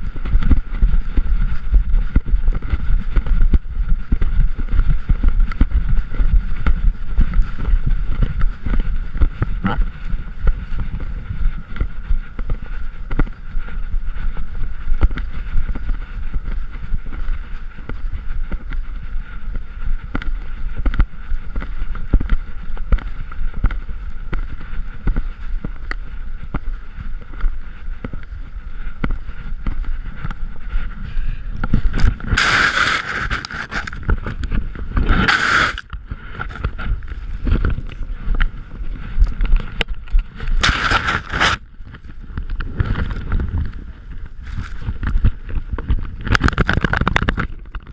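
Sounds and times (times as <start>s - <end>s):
camera rubbing against fur: 0.0s - 47.9s
wind rumble: 0.0s - 47.9s
rushing burst: 32.3s - 33.8s, 35.2s - 35.8s.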